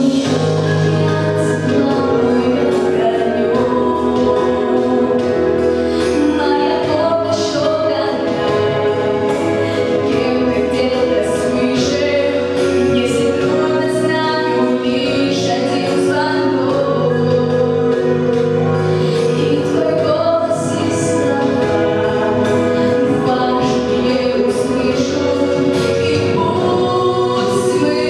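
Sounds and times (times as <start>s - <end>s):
musical accompaniment: 0.0s - 28.0s.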